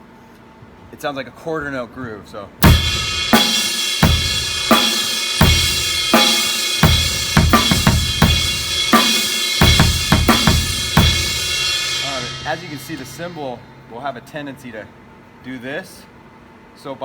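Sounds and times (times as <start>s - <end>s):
bass drum and snare: 2.6s - 13.4s
crash cymbal: 2.6s - 14.0s.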